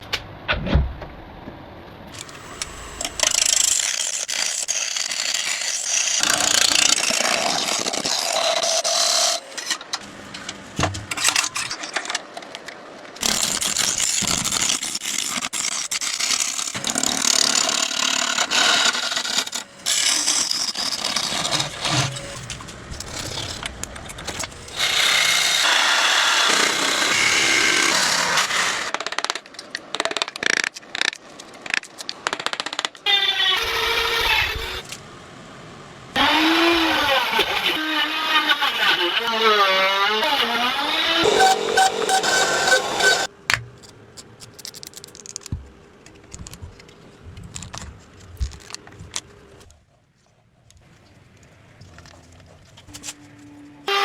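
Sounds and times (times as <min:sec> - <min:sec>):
power tools grinding and sanding wood: 0:02.2 - 0:10.0, 0:13.2 - 0:29.0, 0:36.2 - 0:43.3.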